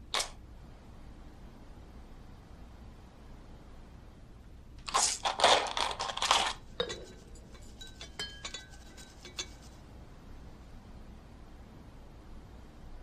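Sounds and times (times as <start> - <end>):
rustling handling noise: 4.8 - 9.9
light ringing clinks: 6.8 - 9.7.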